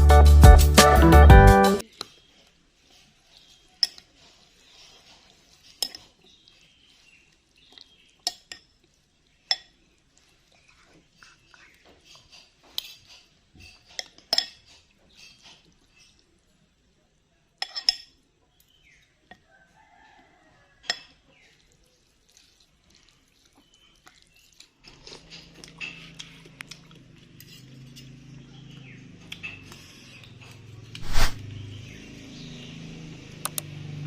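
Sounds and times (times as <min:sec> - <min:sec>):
rooster crowing faintly: 0:19.4 - 0:21.2.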